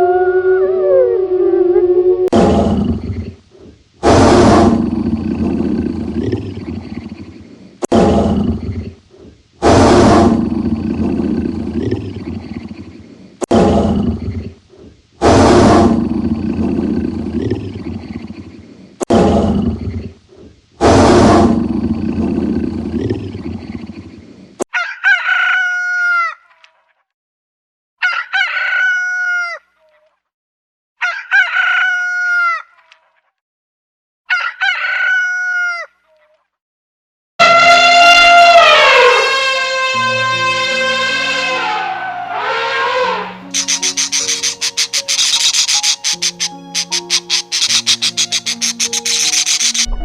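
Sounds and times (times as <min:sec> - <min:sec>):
harsh animal calls: 0:41.1 - 0:50.0.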